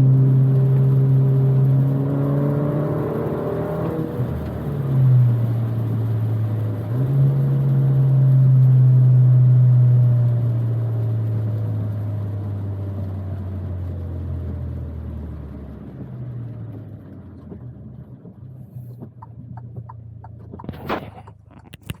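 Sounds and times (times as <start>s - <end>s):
car engine and road drone: 0.0s - 22.0s.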